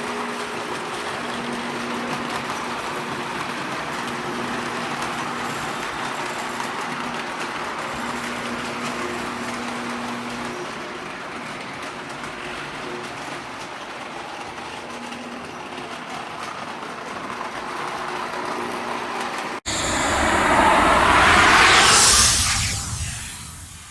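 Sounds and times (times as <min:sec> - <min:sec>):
loud whoosh: 0:19.7 - 0:23.9.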